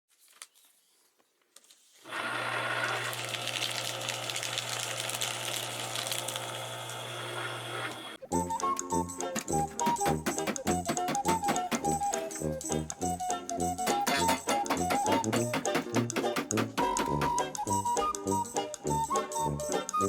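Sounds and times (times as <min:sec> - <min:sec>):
paper shredder running: 0:02.1 - 0:08.2.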